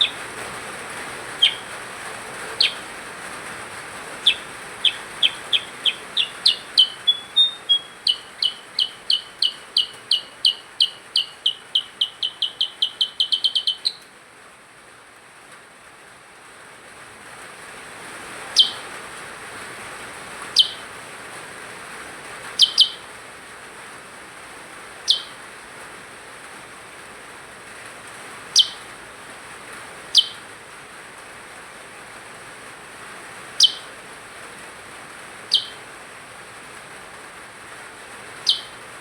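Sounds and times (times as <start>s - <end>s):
songbird chirps: 0.0s - 14.2s, 18.4s - 19.0s, 20.4s - 21.0s, 22.4s - 23.2s, 24.9s - 25.6s, 28.4s - 29.0s, 30.0s - 30.5s, 33.5s - 34.0s, 35.4s - 36.0s, 38.2s - 39.0s
steady hiss: 0.0s - 39.0s.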